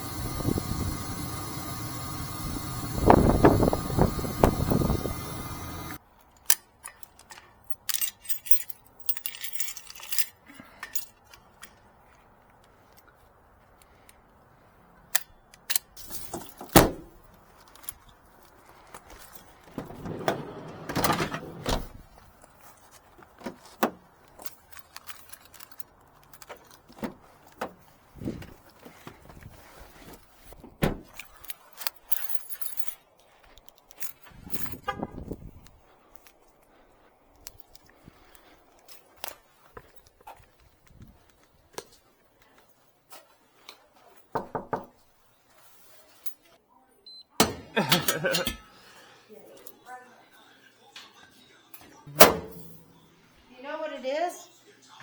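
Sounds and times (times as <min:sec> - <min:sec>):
small metal objects clinking: 0:07.7 - 0:11.3.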